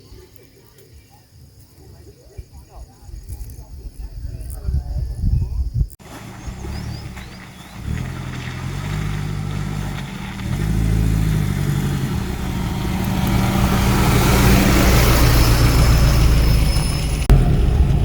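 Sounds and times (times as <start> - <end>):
car engine revving: 6.0 - 18.0.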